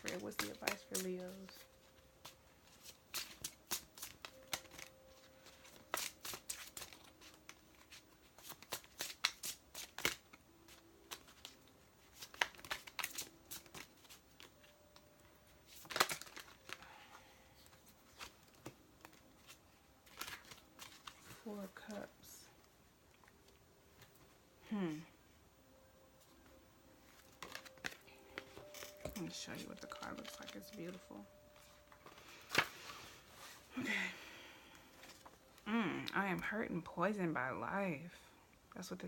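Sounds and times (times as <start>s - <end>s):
cards being shuffled: 0.0s - 22.0s, 27.1s - 33.6s.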